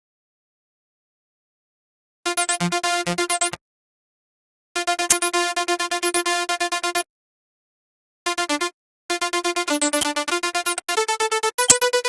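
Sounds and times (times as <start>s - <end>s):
synthesizer repeated bright notes: 9.8s - 10.4s, 11.0s - 12.0s.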